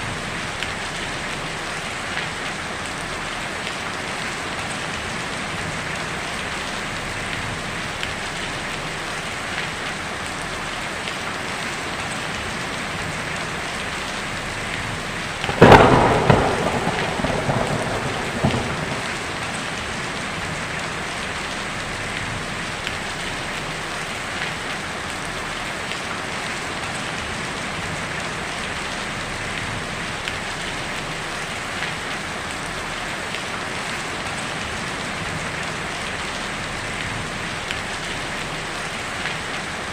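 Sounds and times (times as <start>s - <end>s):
rain on a tin roof: 0.0s - 39.9s
thunderclap rumbling: 15.3s - 22.6s.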